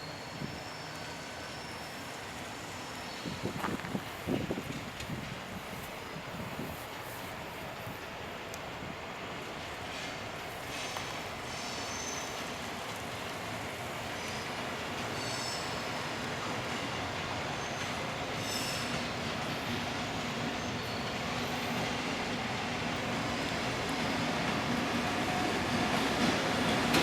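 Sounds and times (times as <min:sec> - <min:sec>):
train wheels rumbling on rails: 0:00.0 - 0:27.0
high-pitched wheel squeals: 0:18.4 - 0:19.0.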